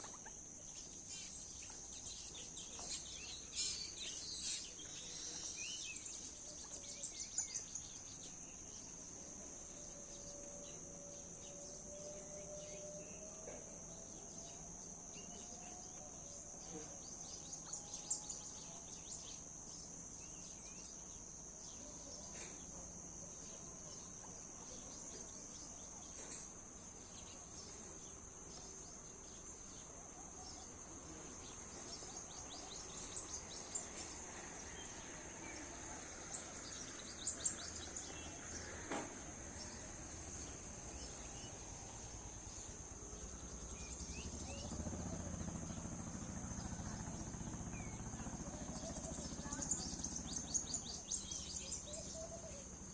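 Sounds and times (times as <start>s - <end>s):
bird chirps: 0.0s - 9.0s, 47.8s - 52.7s
crickets droning: 0.0s - 52.9s.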